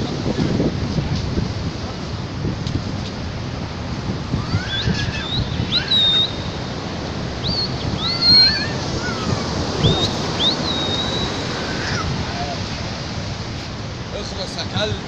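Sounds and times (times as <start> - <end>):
storm surf: 0.0 - 15.0
wind: 0.0 - 15.0
bird calling: 4.3 - 12.8.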